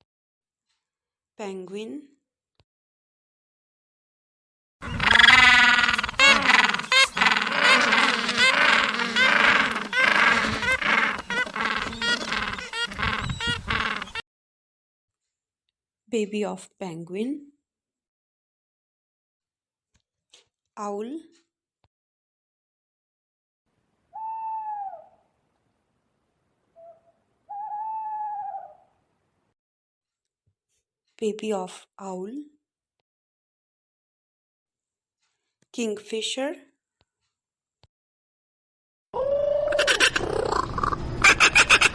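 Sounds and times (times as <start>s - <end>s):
owl hooting: 4.8s - 14.2s, 24.1s - 25.3s, 26.8s - 29.0s, 39.2s - 41.9s
penguins calling: 4.8s - 14.2s, 39.6s - 41.9s.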